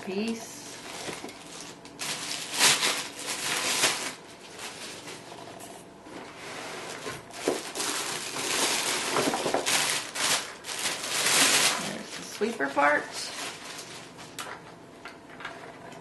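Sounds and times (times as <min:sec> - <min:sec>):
packaging rustling and crinkling: 0:00.7 - 0:05.5, 0:06.1 - 0:14.6.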